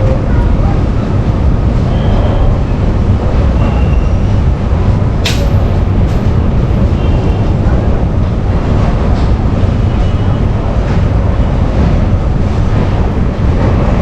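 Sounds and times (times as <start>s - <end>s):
train wheels rumbling on track: 0.0s - 14.0s
sharp clank: 5.2s - 7.2s.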